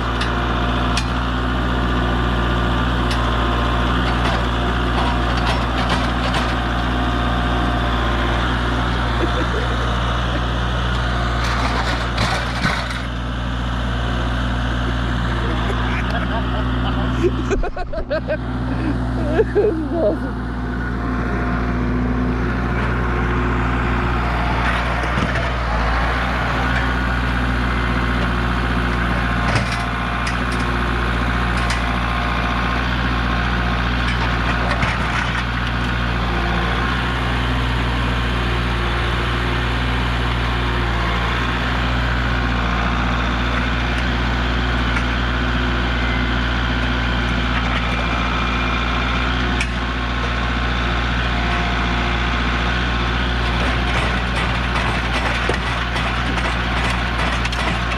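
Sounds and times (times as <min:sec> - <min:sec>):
tractor engine running: 0:00.0 - 0:57.9
parts cracking and knocking: 0:53.4 - 0:57.9.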